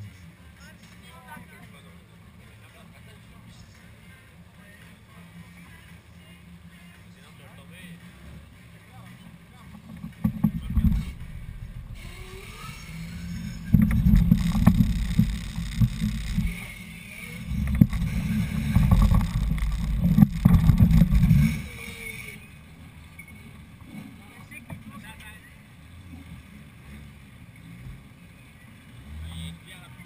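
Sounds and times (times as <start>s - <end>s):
off-road vehicle engine revving: 10.0s - 30.0s.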